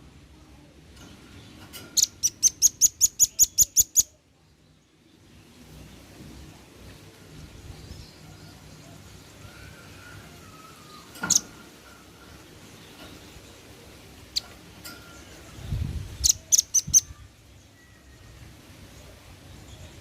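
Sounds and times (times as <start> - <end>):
nuthatch high chip calls: 2.0 - 4.1, 16.2 - 17.1.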